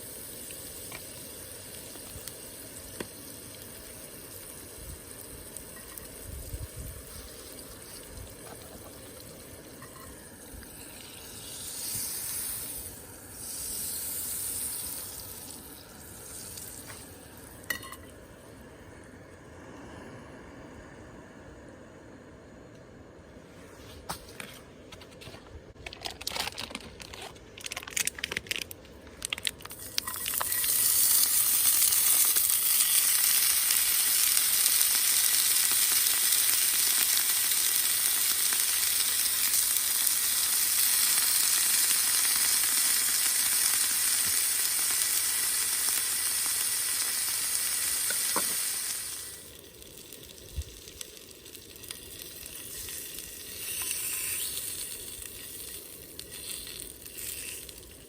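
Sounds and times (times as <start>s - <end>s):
food sizzling in a pan: 0.0s - 18.1s, 29.8s - 58.0s.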